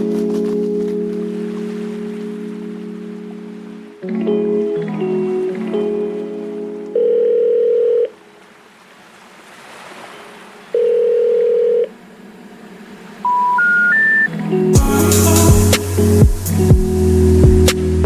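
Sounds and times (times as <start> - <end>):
short beeps climbing in pitch: 13.2 - 14.3
long steady beeps: 13.2 - 15.0.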